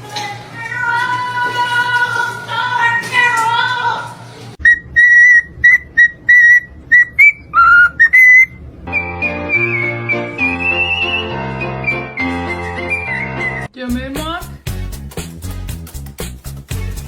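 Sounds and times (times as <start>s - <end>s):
parrot whistling a tune: 4.6s - 13.7s
held musical tones: 4.6s - 14.6s.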